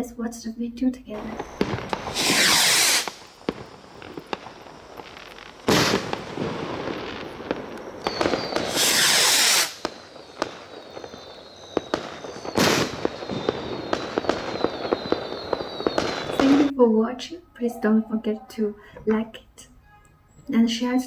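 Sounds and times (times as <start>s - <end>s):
firework crackles: 1.1s - 16.7s
firework shells bursting: 1.1s - 16.7s
rocket hissing upward: 1.2s - 16.7s.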